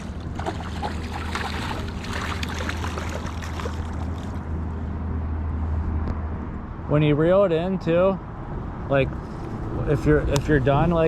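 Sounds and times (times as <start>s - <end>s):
creek water trickling: 0.0s - 4.6s
small water splashes: 0.2s - 4.5s
wind rumble on microphone: 8.5s - 11.0s.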